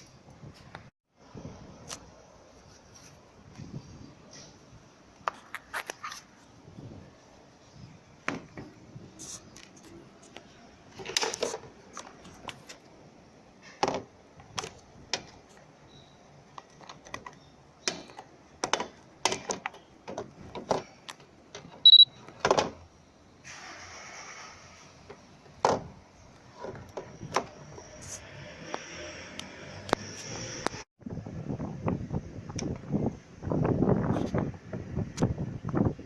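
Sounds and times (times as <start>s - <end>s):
clicks and knocks of handling: 16.5s - 22.8s
short high-pitched electronic beep: 21.9s - 22.2s.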